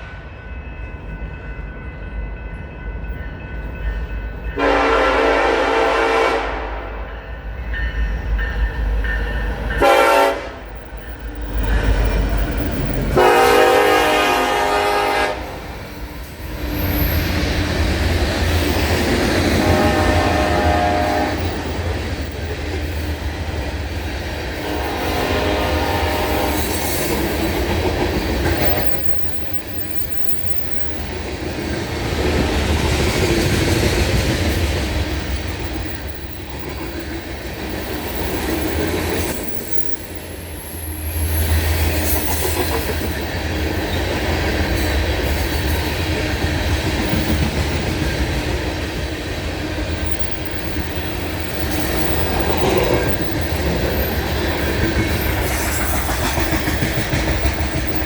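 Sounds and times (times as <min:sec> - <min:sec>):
train wheels clattering over rail joints: 0:41.6 - 0:58.0.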